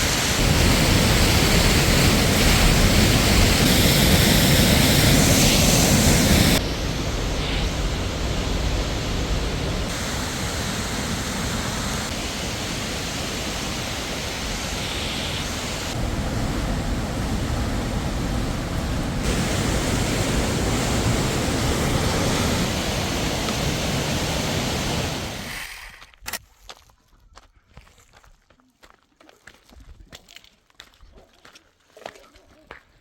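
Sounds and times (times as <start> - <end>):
waterfall rushing: 0.0 - 25.5.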